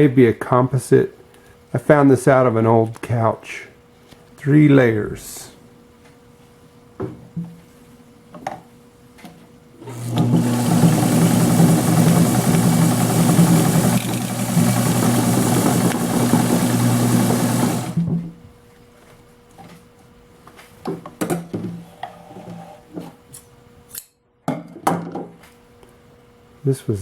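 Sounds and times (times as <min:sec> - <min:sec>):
sewing machine running: 0:09.8 - 0:18.1.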